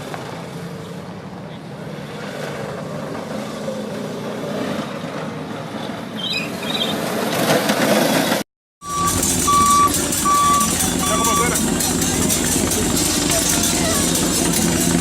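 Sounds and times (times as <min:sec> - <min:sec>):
repeating electronic beep: 0:08.8 - 0:11.7
vehicle engine running: 0:08.8 - 0:15.0.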